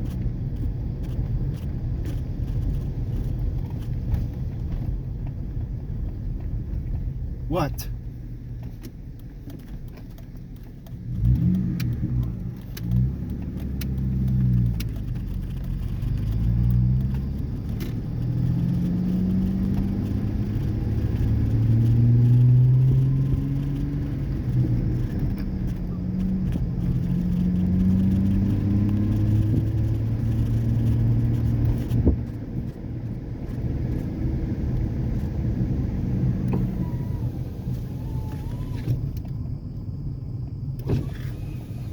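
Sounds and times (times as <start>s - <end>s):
truck exhaust accelerating: 10.8s - 41.9s.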